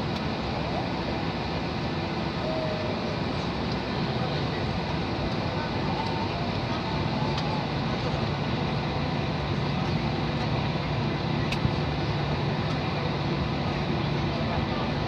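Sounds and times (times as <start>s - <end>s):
jet engine rumble in cabin: 0.0s - 15.0s.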